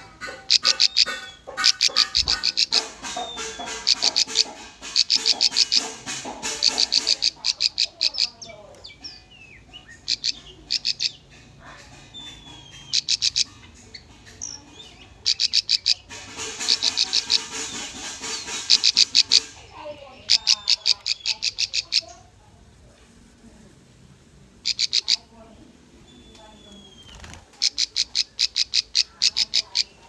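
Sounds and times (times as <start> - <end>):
bird singing sharp chips: 0.0 - 11.5, 12.1 - 22.2
soft bird calls: 0.0 - 22.4, 24.6 - 30.0.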